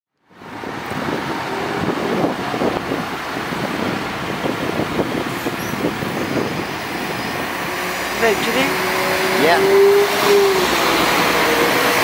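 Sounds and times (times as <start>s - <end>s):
train engine: 0.5s - 12.0s
train wheels on rails: 0.6s - 12.0s.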